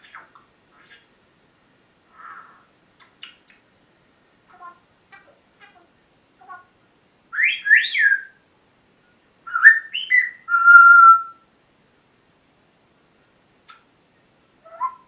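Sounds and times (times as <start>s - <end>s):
parrot chirps: 0.0s - 1.1s, 2.1s - 3.6s, 7.3s - 8.4s, 9.5s - 11.4s, 14.6s - 15.0s
parrot whistling: 7.4s - 8.4s, 9.5s - 11.4s, 14.6s - 15.0s.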